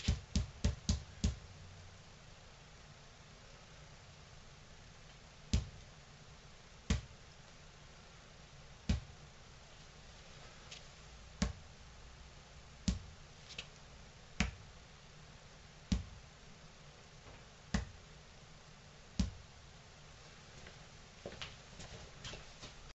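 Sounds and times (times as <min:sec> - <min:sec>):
balls bouncing on hard floor: 0:00.0 - 0:01.4, 0:05.6 - 0:05.8, 0:06.9 - 0:07.2, 0:08.8 - 0:09.2, 0:11.4 - 0:11.7, 0:12.9 - 0:13.2, 0:14.4 - 0:14.7, 0:15.9 - 0:16.2, 0:17.3 - 0:18.0, 0:19.2 - 0:19.4.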